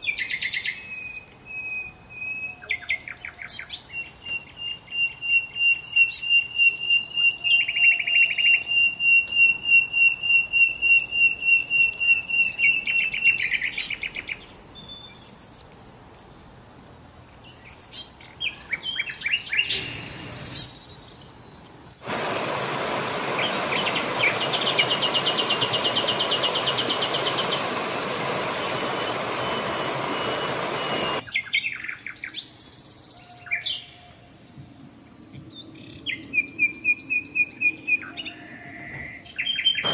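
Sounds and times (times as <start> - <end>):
songbirds singing: 0.0 - 22.0, 23.2 - 39.9
steady hiss: 21.6 - 31.2.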